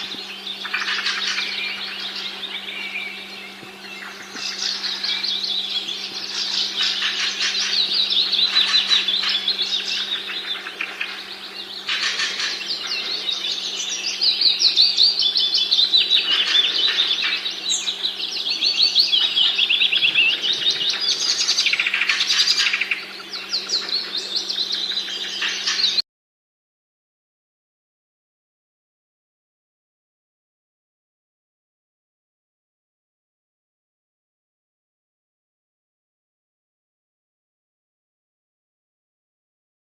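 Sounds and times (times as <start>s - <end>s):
songbirds chirping: 0.0s - 26.0s
steady low hum: 0.0s - 26.0s.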